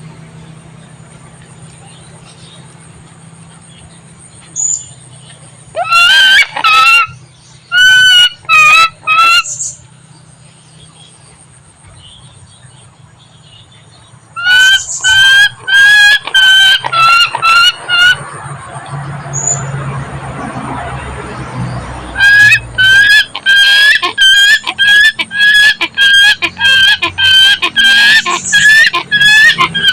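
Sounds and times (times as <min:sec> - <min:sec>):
hornbill honking calls: 0:05.7 - 0:09.8, 0:14.4 - 0:18.3, 0:22.0 - 0:29.9.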